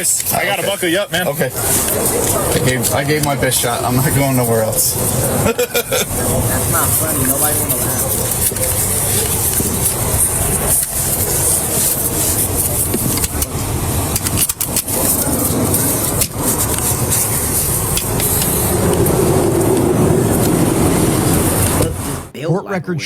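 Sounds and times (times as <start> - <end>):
vehicle road noise: 0.0 - 22.3.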